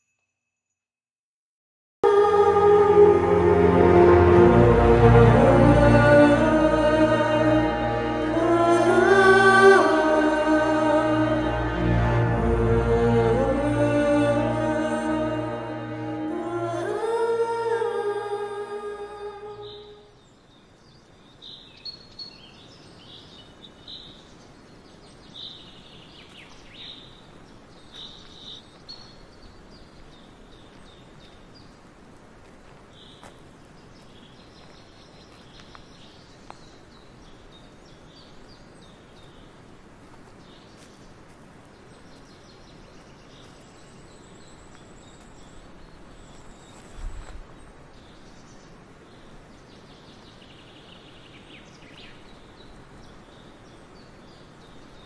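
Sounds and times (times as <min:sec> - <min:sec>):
faint outdoor hiss: 0:02.0 - 0:55.0
small birds chirping: 0:19.6 - 0:55.0.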